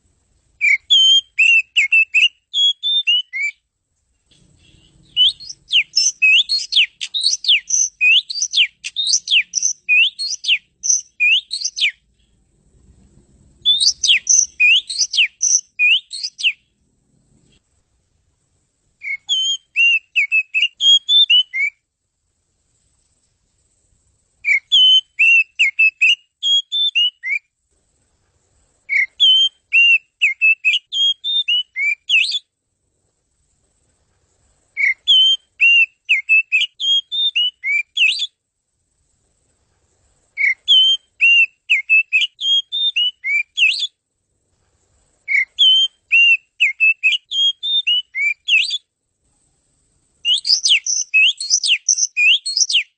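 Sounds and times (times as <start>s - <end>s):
magpie-robin whistled song: 0.6s - 3.6s, 4.3s - 12.3s, 13.6s - 16.7s, 19.0s - 21.8s, 24.4s - 27.5s, 28.9s - 32.5s, 34.7s - 38.4s, 40.4s - 44.0s, 45.2s - 48.9s, 50.2s - 52.9s.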